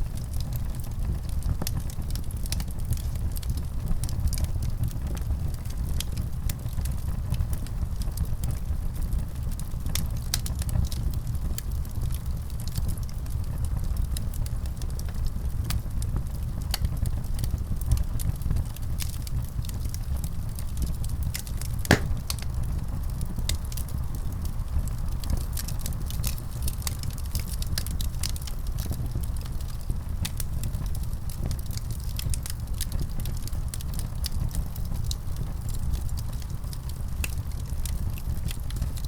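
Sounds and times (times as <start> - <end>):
wood fire crackling: 19.3 - 24.5, 25.2 - 39.0.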